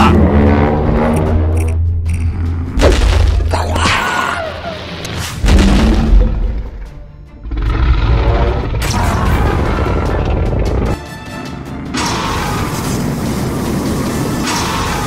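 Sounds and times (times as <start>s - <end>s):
background music: 0.0s - 15.0s
deep boom: 5.4s - 6.6s.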